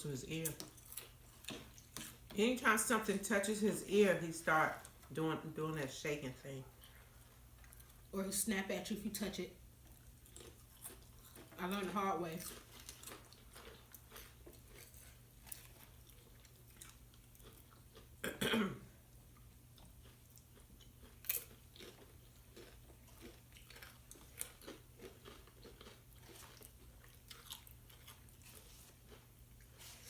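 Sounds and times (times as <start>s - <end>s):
chips being chewed: 9.9s - 18.2s, 19.4s - 30.0s.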